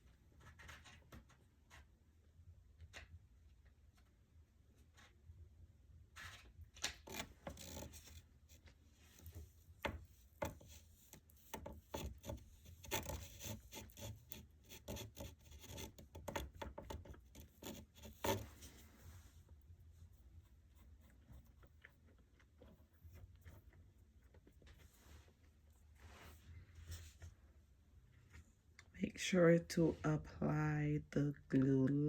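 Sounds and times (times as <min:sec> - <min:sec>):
rubbing and scraping on wood: 0:06.2 - 0:27.4.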